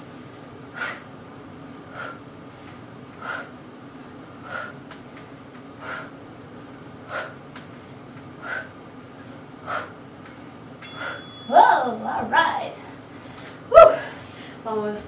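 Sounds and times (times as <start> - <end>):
woman exhaling forcefully: 3.2 - 3.5, 4.4 - 4.8, 5.8 - 6.1, 7.1 - 7.4, 8.4 - 8.7, 13.7 - 14.4.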